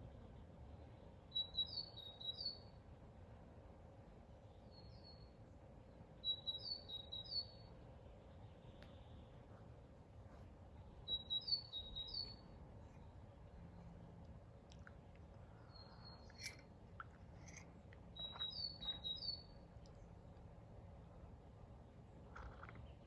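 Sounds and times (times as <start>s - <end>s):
songbird chirping: 1.0s - 2.8s, 6.2s - 9.5s, 10.8s - 21.2s.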